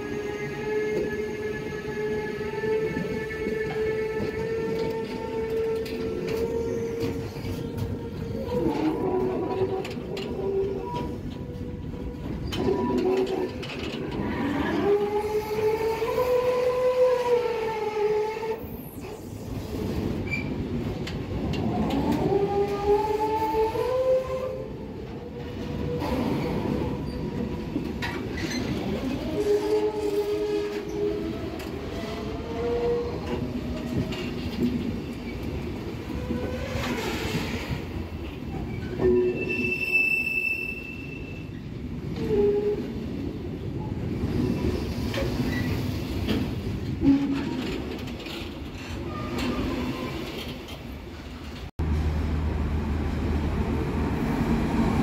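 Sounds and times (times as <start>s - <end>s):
train wheels squealing: 0.0s - 9.3s, 14.8s - 20.7s, 25.4s - 34.3s, 38.5s - 43.1s, 43.8s - 46.2s
train rumble: 0.0s - 55.0s.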